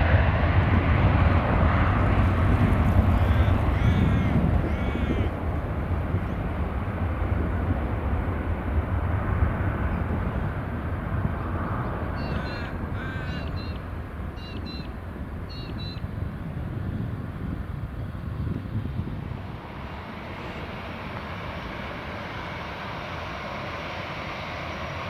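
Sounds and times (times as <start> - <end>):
jet engines rumbling: 0.0 - 25.0
bird cawing: 3.0 - 5.4, 12.1 - 14.9.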